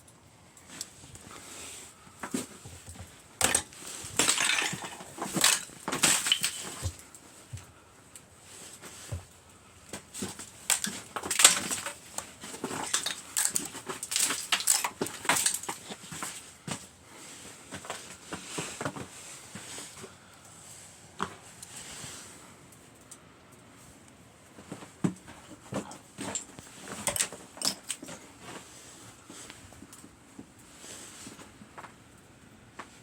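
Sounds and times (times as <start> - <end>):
icicles cracking and shattering: 2.2 - 7.2, 9.9 - 16.4, 25.7 - 28.2.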